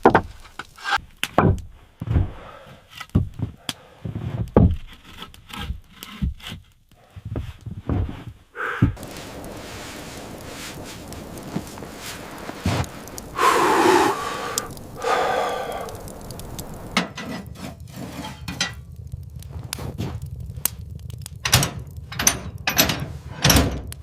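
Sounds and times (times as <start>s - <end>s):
wooden knocks and thuds: 0.0s - 0.3s, 1.3s - 2.4s, 3.1s - 4.8s
rasping sounds: 2.7s - 21.3s.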